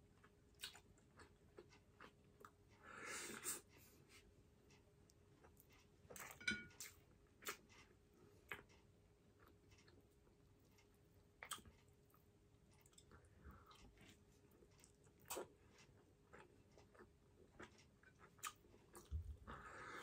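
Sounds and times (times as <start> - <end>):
person chewing with mouth smacks: 0.2 - 2.6, 5.4 - 8.8, 11.4 - 12.2, 12.8 - 20.0.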